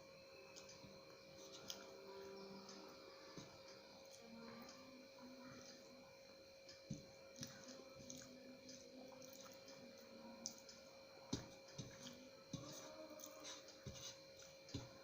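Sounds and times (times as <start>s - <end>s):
faint electrical hum: 0.0s - 15.0s
soft chewing: 0.4s - 15.0s
small clicks of food and fingers: 0.5s - 2.0s, 6.7s - 10.8s.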